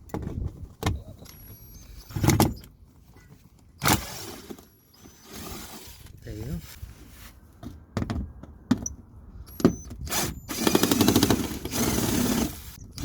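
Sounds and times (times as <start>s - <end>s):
power drill spinning: 1.2s - 2.6s, 3.8s - 6.1s, 9.5s - 13.0s.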